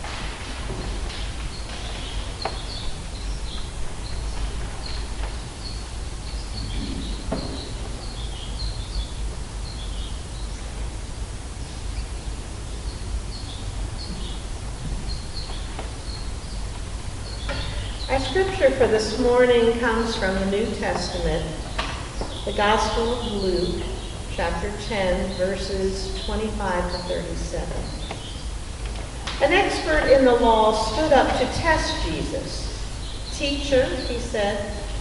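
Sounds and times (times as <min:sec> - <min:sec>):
low background noise: 0:00.0 - 0:35.0
small birds chirping: 0:00.7 - 0:35.0
soft knocks: 0:06.8 - 0:08.0.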